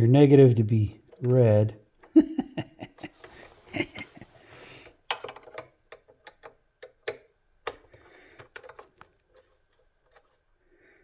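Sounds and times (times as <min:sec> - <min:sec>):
clicks and taps of small tools: 0:05.1 - 0:09.5.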